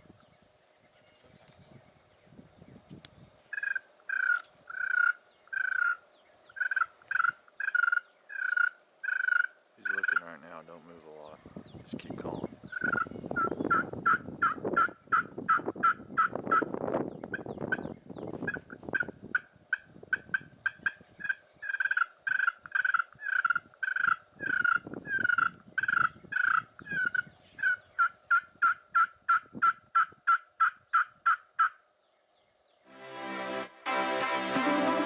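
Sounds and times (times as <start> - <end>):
wild turkeys yelping: 3.5 - 10.4, 12.7 - 16.7, 18.5 - 31.8.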